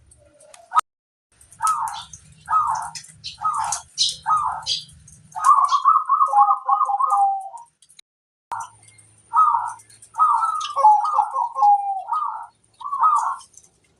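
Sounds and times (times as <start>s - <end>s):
dove cooing: 0.1s - 0.8s, 1.5s - 7.7s, 8.5s - 13.6s.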